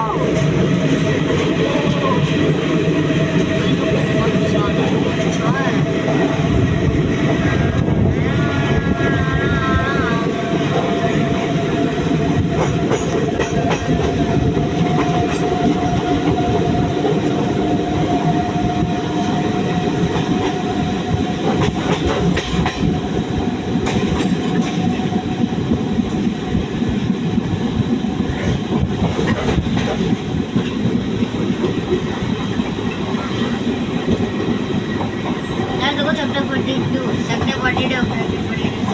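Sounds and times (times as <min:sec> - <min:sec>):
train wheels clattering over rails: 0:10.2 - 0:38.9.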